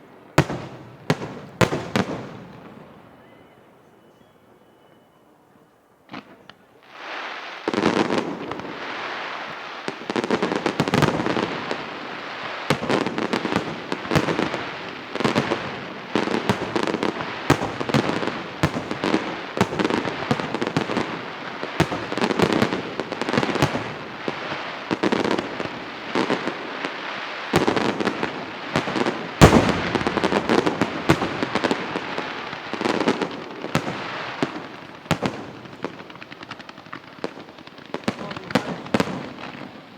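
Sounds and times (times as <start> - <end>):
fireworks bursting: 0.0 - 3.5, 6.1 - 39.9
sharp firework bangs: 12.7 - 26.6, 27.5 - 37.4.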